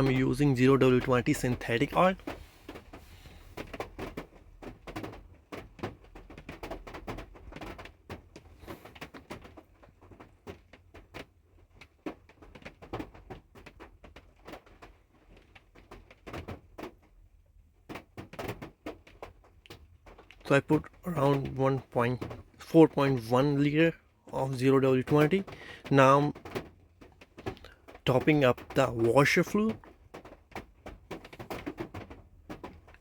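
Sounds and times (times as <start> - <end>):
light clicks and knocks of bottles: 17.8 - 33.0.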